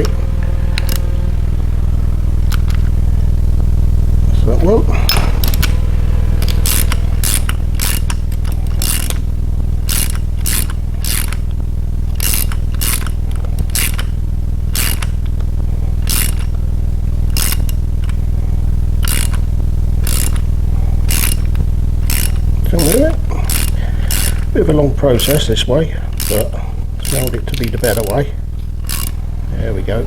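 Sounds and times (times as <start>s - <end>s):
steady low hum: 0.0s - 30.0s
ratchet wrench clicking: 0.8s - 1.0s, 5.1s - 5.7s, 6.4s - 16.6s, 17.2s - 18.2s, 19.0s - 24.5s, 25.2s - 25.5s, 26.1s - 29.2s.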